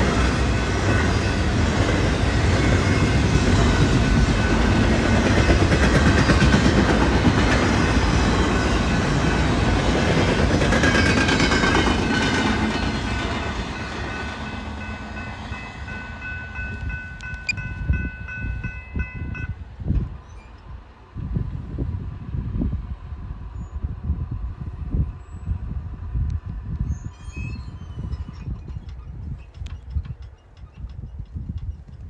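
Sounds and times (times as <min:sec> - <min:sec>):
train wheels clattering: 0:00.0 - 0:15.1, 0:28.0 - 0:32.0.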